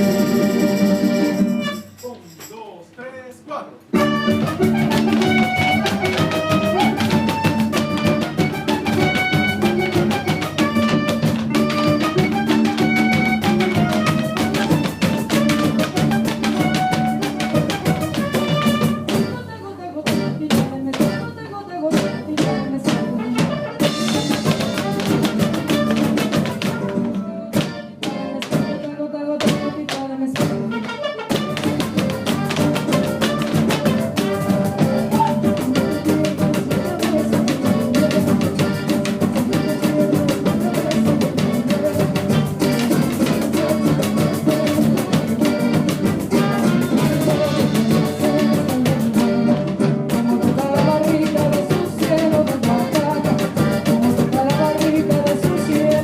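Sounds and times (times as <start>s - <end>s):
band playing instrumental music: 0.0s - 2.7s, 3.8s - 56.0s
person counting in: 1.9s - 4.0s.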